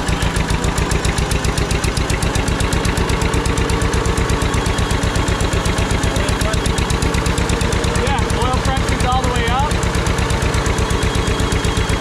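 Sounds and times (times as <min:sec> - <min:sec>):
tractor engine popping: 0:00.0 - 0:12.0.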